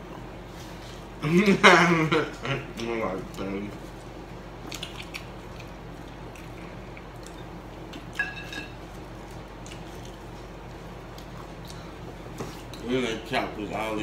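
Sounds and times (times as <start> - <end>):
steady low hum: 0.0 - 14.0
people chewing food: 2.6 - 12.9.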